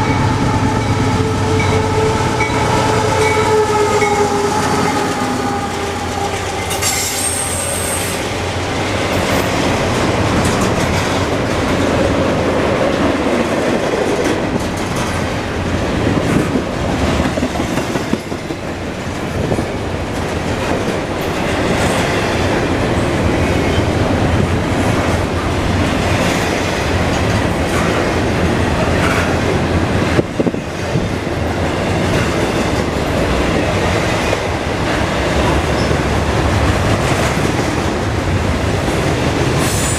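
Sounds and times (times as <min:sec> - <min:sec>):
freight train rumbling past: 0:00.0 - 0:39.9
high wheel squeal: 0:01.6 - 0:08.2
wheels clicking over rail joints: 0:09.0 - 0:39.8.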